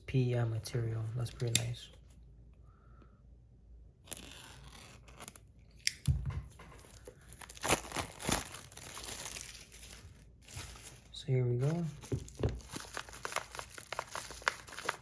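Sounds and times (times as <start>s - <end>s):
packaging being torn open: 4.1s - 5.5s, 6.9s - 11.1s, 11.9s - 15.0s.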